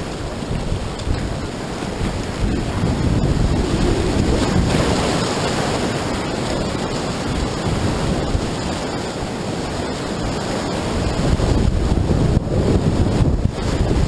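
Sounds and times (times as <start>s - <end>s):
whitewater rapids rushing: 0.0s - 14.0s
wind buffeting microphone: 0.0s - 14.0s.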